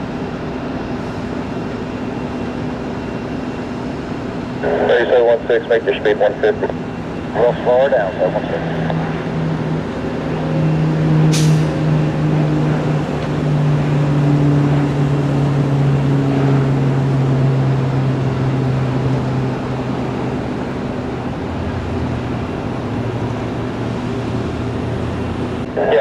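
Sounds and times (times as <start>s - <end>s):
turboprop propeller drone: 0.0s - 26.0s.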